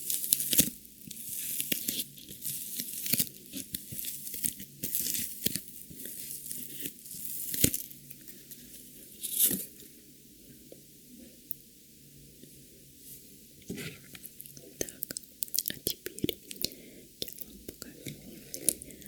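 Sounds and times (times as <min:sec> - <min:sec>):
packaging tearing and crinkling: 0:00.0 - 0:08.0.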